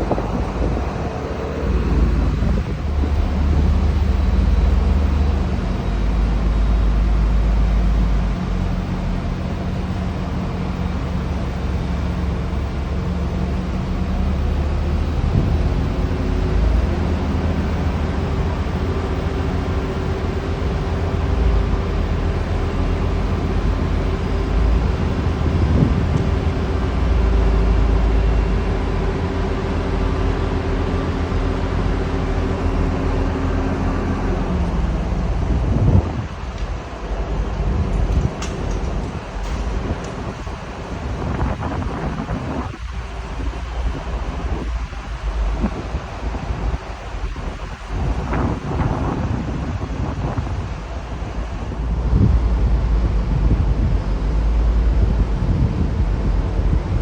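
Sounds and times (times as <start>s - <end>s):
engine hum with hiss: 0.0s - 57.0s.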